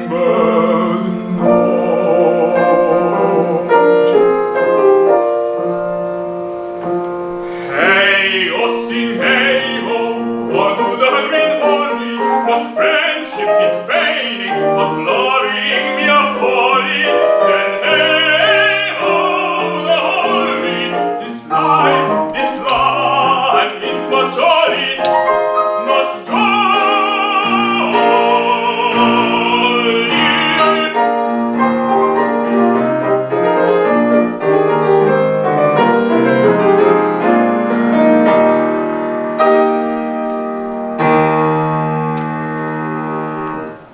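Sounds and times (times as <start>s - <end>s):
tenor singing operatically: 0.0s - 4.2s, 7.4s - 31.4s
piano: 0.0s - 43.9s.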